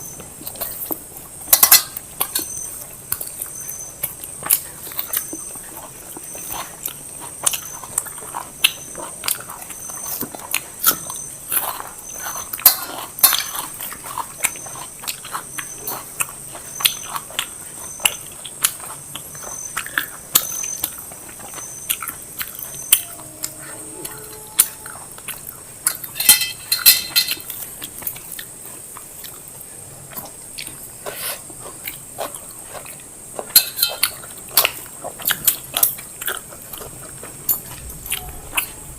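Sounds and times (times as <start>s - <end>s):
person chewing food: 0.0s - 38.9s
plates clinking: 26.0s - 27.6s.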